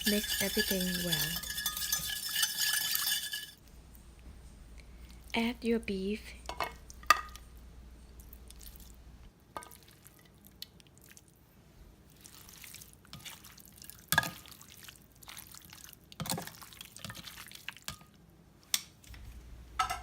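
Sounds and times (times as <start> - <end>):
utensil clinking against bowl: 0.0 - 3.6
wet squishing of meat mixing: 9.7 - 11.4, 12.0 - 17.9.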